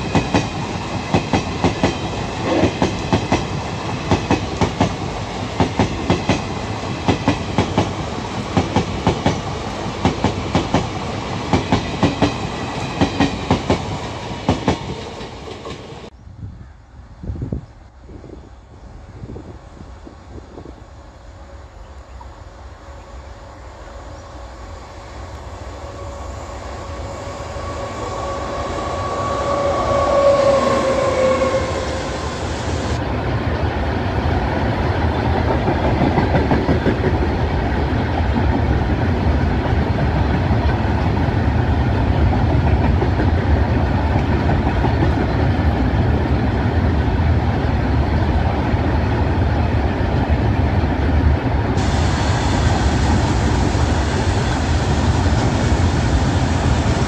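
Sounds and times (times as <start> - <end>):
locomotive two-note horn: 24.3 - 32.3.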